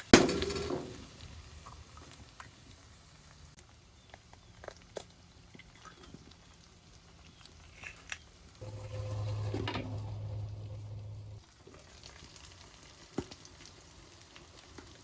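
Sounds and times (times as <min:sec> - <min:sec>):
steady low hum with hiss: 0:08.6 - 0:11.4.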